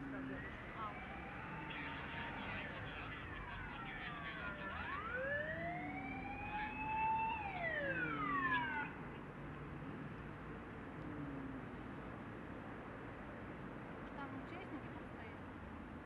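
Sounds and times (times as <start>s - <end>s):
fire engine siren wailing: 0.0s - 9.0s.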